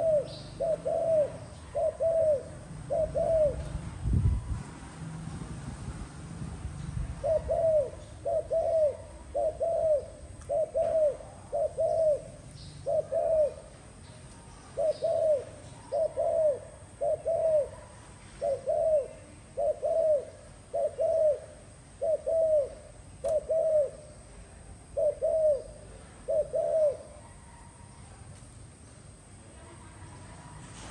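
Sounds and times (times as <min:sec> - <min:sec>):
dove cooing: 0:00.0 - 0:03.9, 0:07.2 - 0:13.9, 0:14.6 - 0:24.2, 0:24.8 - 0:27.9.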